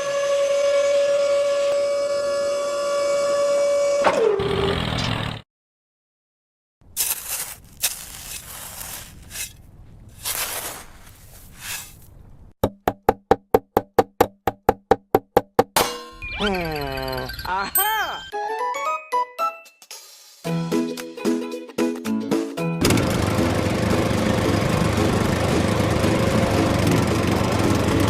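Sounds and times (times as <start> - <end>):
horn-like tone: 0.0 - 4.1.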